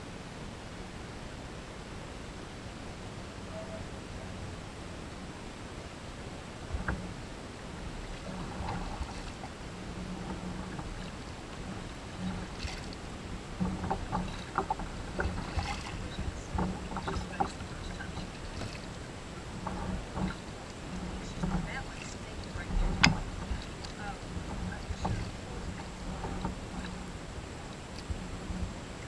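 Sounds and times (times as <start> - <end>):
low background noise: 0.0 - 29.0
paddle splashing water: 3.4 - 29.0
light sharp knocks: 8.0 - 27.0.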